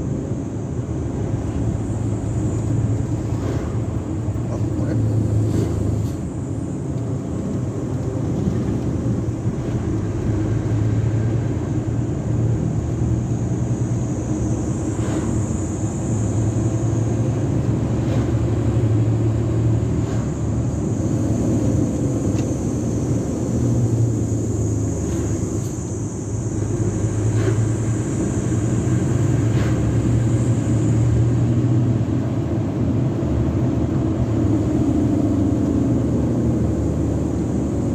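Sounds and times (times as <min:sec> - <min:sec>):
road noise: 0:00.0 - 0:37.9
truck engine drone: 0:00.0 - 0:37.9.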